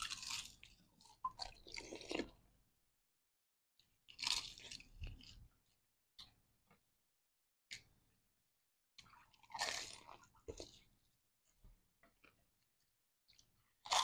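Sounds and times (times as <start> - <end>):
crunching and chewing crisp shells: 0.0 - 2.4, 4.0 - 5.4, 9.0 - 10.8, 13.4 - 14.0.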